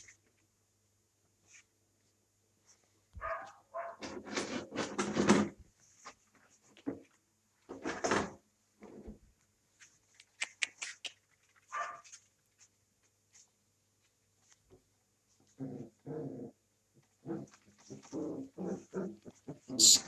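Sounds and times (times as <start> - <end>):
puppies chewing and scuffling: 9.8 - 15.6, 16.9 - 19.7
puppy whine: 17.3 - 20.0.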